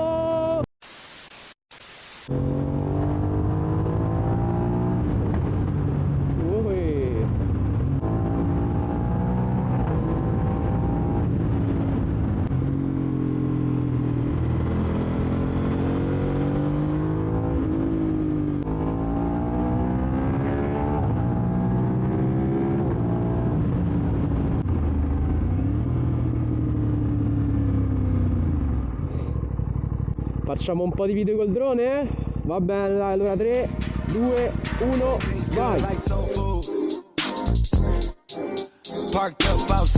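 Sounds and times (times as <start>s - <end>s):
motorcycle engine revving through gears: 2.3s - 6.6s, 7.3s - 30.8s.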